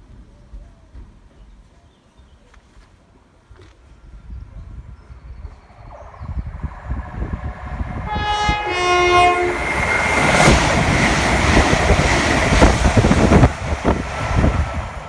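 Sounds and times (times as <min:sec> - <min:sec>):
train passing with wheel clatter: 0:05.2 - 0:15.0
two-note train horn: 0:08.0 - 0:09.8.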